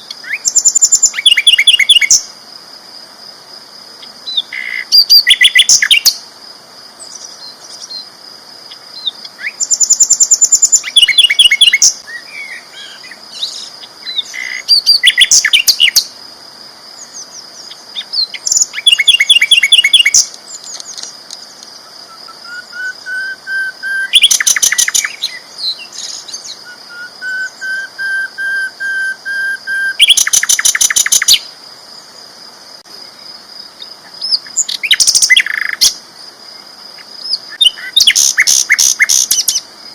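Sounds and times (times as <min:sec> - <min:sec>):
flycatcher chattering trills: 0:17.1 - 0:31.5, 0:37.2 - 0:39.6
thin drawn-out bird whistles: 0:22.1 - 0:31.4.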